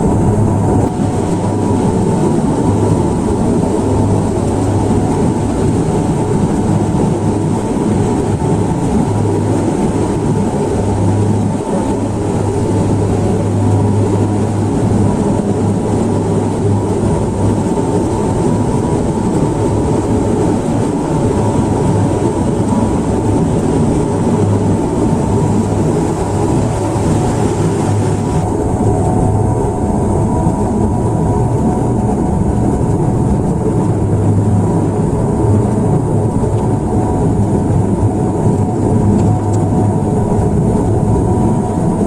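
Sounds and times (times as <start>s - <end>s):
aircraft cabin engine noise: 0.0s - 42.0s.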